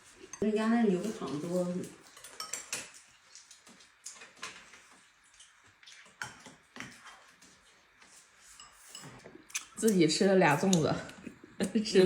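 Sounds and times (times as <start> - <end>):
chopsticks clinking against bowls: 2.0 - 4.6.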